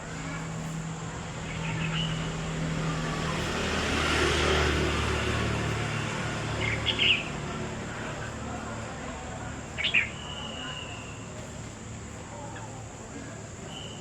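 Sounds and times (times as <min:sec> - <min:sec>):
vehicle passing: 0:00.0 - 0:10.4
bird chirps: 0:09.8 - 0:11.2, 0:13.7 - 0:14.0.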